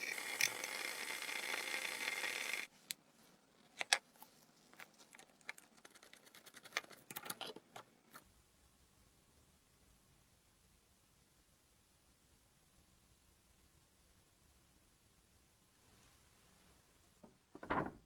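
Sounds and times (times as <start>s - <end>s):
whirring power tool: 0.0s - 2.7s.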